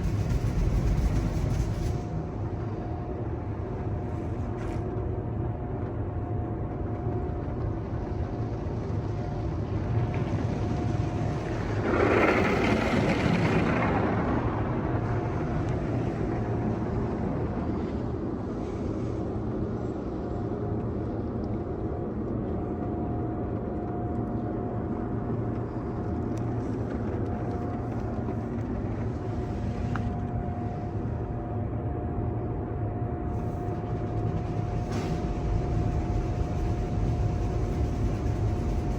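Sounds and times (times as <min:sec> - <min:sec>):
car wash machine drone: 0:09.1 - 0:19.2, 0:33.3 - 0:38.9.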